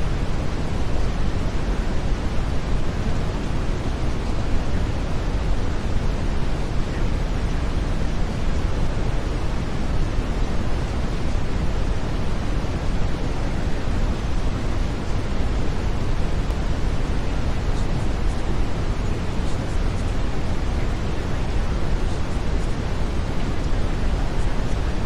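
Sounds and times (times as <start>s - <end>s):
brown noise hiss: 0.0s - 25.0s.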